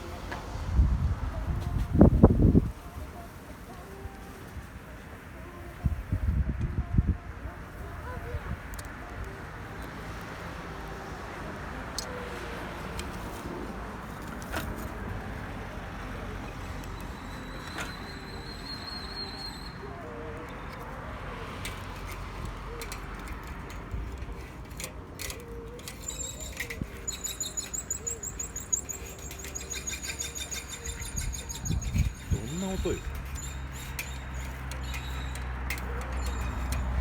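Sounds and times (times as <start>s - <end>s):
outdoor background hum: 0.0s - 37.0s
small bird chirping: 26.0s - 35.4s.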